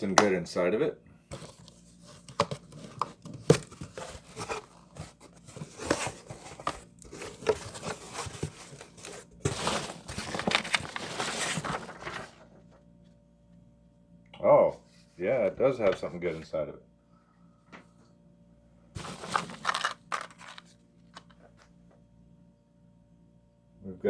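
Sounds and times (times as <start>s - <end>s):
cardboard clicks and scrapes: 1.3s - 12.4s, 19.0s - 21.4s
packing material crinkling: 1.4s - 12.4s, 19.0s - 21.3s.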